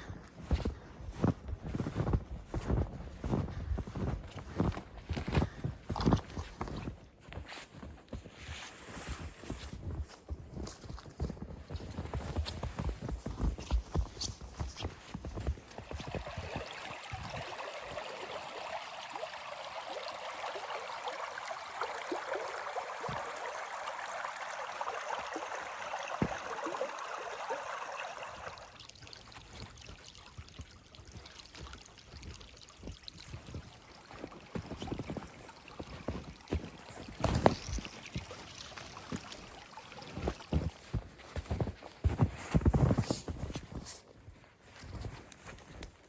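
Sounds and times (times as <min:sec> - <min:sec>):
stream water rushing: 0:15.6 - 0:41.0.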